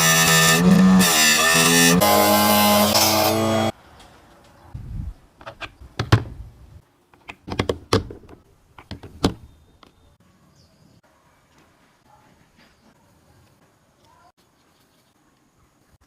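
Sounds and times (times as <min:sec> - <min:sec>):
sharp knocks and clicks: 0:07.2 - 0:10.0.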